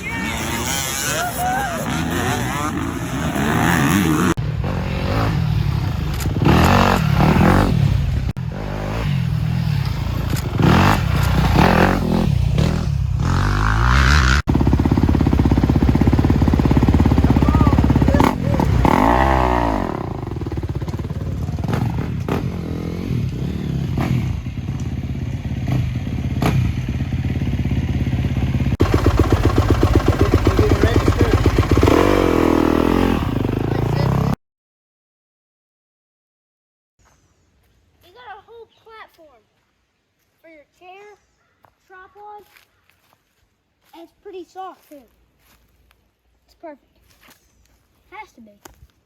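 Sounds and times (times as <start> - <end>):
dirt bike engines revving: 0.0 - 34.4
dirt bike passing close by: 0.0 - 34.4.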